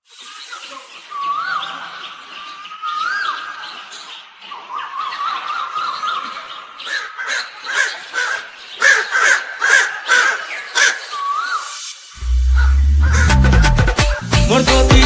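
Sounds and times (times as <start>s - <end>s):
crows cawing: 4.5s - 11.6s, 12.5s - 13.8s.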